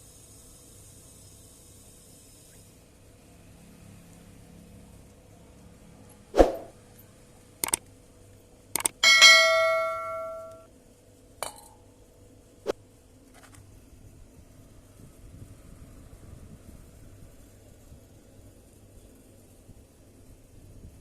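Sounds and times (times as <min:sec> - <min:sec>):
metal knocks and clanks: 0:09.0 - 0:10.6
struck metal ringing: 0:09.0 - 0:10.7.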